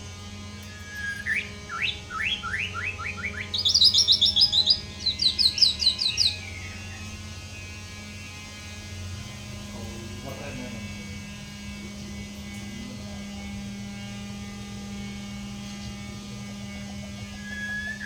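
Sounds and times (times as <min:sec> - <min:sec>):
electrical hum: 0:00.0 - 0:18.0
songbird singing: 0:00.6 - 0:07.6, 0:15.7 - 0:18.0.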